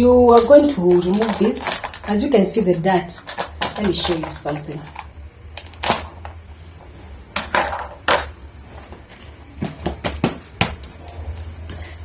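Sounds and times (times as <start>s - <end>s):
plastic parts clicking and knocking: 0.3s - 2.4s, 3.1s - 6.4s.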